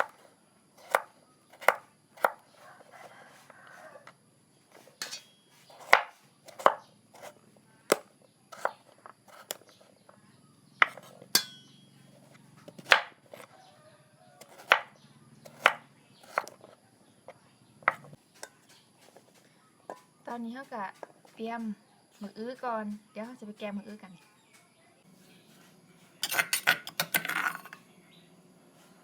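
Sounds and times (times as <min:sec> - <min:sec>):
knife chopping on cutting board: 0:00.0 - 0:04.0, 0:05.6 - 0:09.7, 0:10.8 - 0:11.6, 0:12.7 - 0:13.5, 0:14.4 - 0:16.8, 0:17.8 - 0:19.1.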